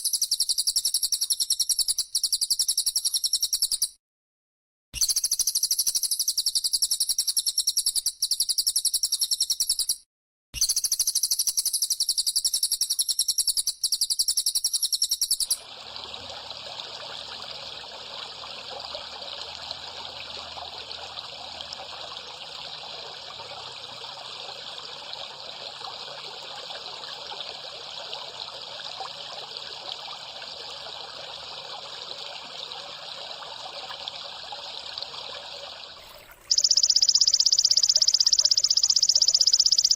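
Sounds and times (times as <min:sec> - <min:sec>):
high-pitched trilling bird call: 0:00.0 - 0:04.0, 0:05.0 - 0:10.0, 0:10.6 - 0:15.6, 0:36.4 - 0:39.9
rushing like running water: 0:15.5 - 0:39.7.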